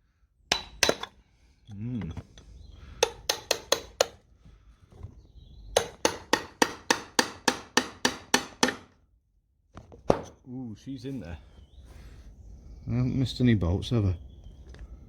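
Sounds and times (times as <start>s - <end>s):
hammer tapping on metal: 3.0s - 4.2s, 5.8s - 8.9s.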